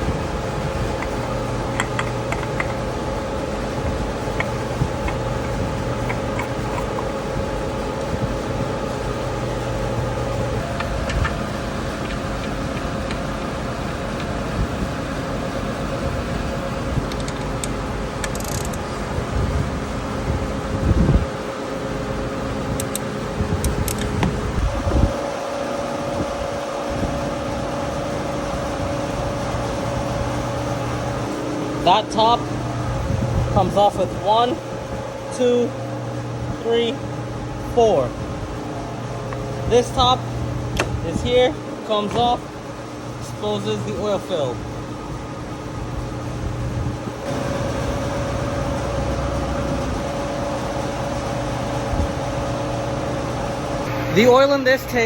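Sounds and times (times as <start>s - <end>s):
fan-like machine hum: 0.0s - 55.0s
steady tone: 53.8s - 55.0s.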